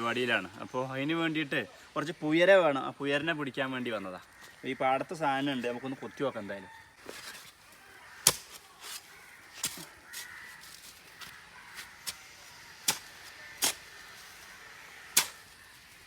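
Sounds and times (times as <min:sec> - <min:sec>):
crows cawing: 0:04.2 - 0:16.0
hoe chopping into soil: 0:07.0 - 0:16.0.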